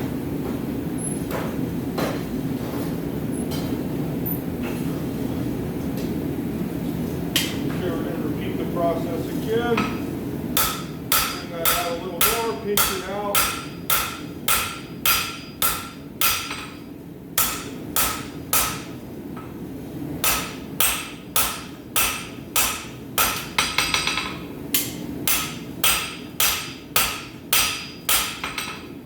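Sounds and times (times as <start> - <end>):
hammer striking steel on anvil: 10.6 - 19.0, 20.2 - 28.9.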